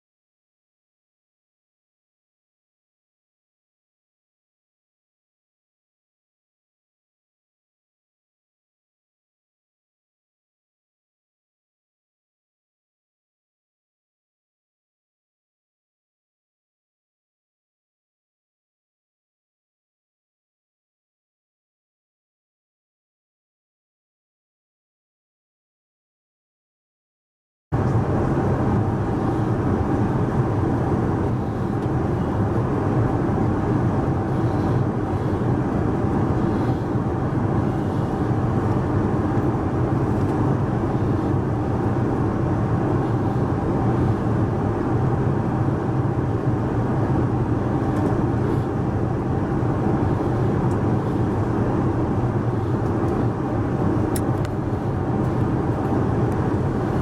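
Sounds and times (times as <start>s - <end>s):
airflow rush and engine drone: 27.8s - 57.0s
faint steady hum: 27.8s - 57.0s.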